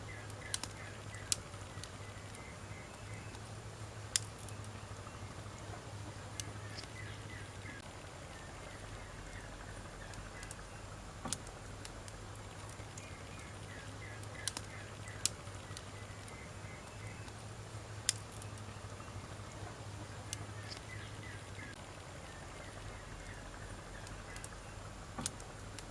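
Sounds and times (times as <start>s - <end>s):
firewood crackling: 0.0s - 25.9s
sharp snapping pops: 0.3s - 2.4s, 4.1s - 4.7s, 11.2s - 16.4s, 18.0s - 18.7s, 24.0s - 25.9s.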